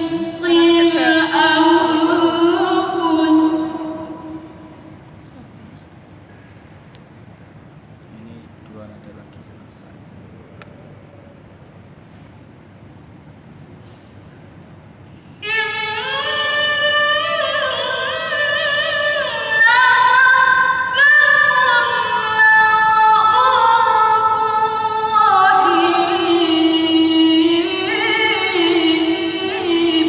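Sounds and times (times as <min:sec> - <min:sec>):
woman reciting melodically: 0:00.0 - 0:06.0, 0:15.4 - 0:30.0.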